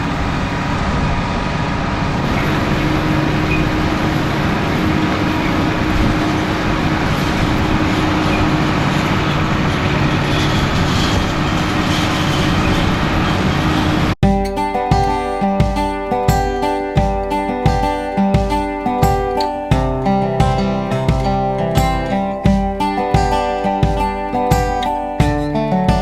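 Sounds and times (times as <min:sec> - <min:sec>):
tractor engine droning: 0:00.0 - 0:18.2.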